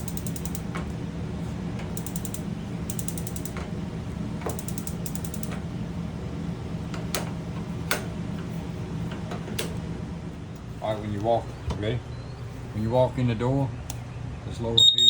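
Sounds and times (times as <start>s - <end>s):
sharp clicks: 0.0s - 0.7s, 2.0s - 3.6s, 4.5s - 5.6s
spark igniter ticking: 0.0s - 1.0s, 1.8s - 3.7s, 4.5s - 5.7s.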